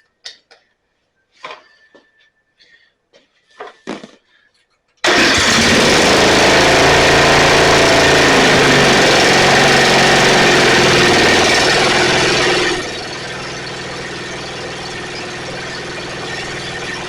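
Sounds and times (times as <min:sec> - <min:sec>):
riding mower engine running: 0:05.0 - 0:17.0.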